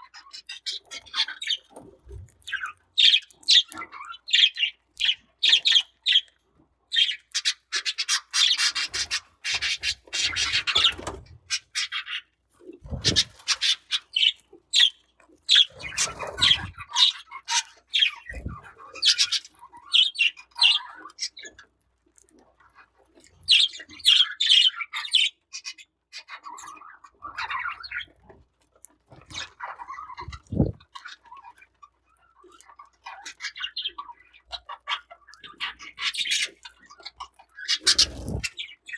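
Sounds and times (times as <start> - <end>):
budgerigars chirping and squawking: 0.1 - 21.6, 23.4 - 28.2, 29.1 - 31.6, 32.6 - 38.9.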